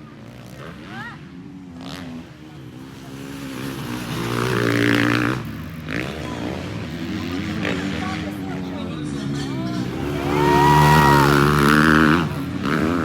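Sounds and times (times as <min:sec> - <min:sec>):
motocross bikes racing: 0:00.0 - 0:13.0
motorbike engine passing close: 0:03.0 - 0:13.0.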